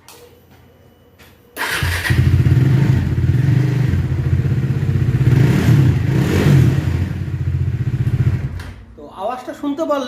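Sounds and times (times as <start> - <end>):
motorcycle engine starting and idling: 1.6 - 8.9.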